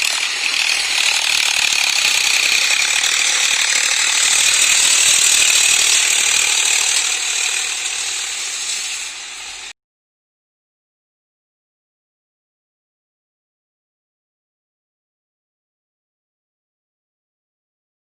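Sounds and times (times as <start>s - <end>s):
harrow rattling and clattering: 0.0s - 9.5s.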